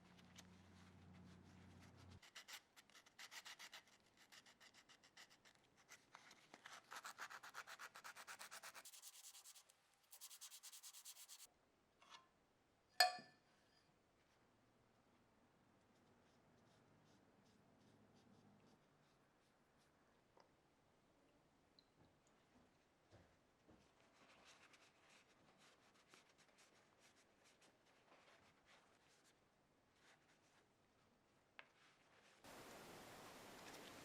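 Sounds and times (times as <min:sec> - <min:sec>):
hand sanding strokes: 0:07.0 - 0:11.5
sharp metallic clink: 0:13.0 - 0:13.4.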